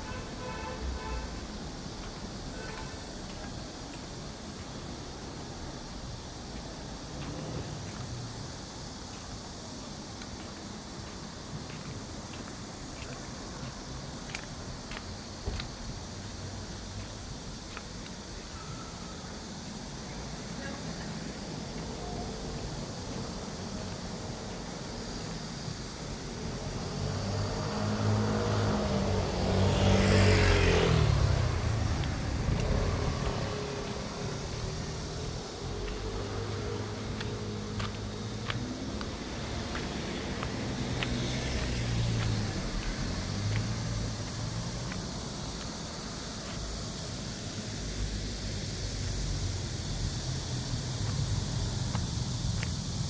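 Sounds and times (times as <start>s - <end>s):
city street rumble and hiss: 0.0s - 53.0s
motor vehicle passing by: 7.0s - 8.4s, 26.4s - 46.6s.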